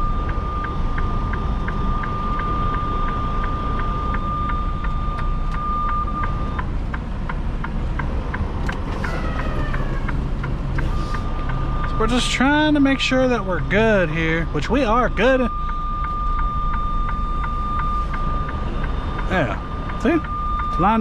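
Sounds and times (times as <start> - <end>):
high-pitched warning tone: 0.0 - 6.7, 8.3 - 21.0
regular ticking: 0.0 - 21.0
truck engine running low: 0.0 - 21.0
man talking: 12.0 - 15.5, 19.3 - 21.0.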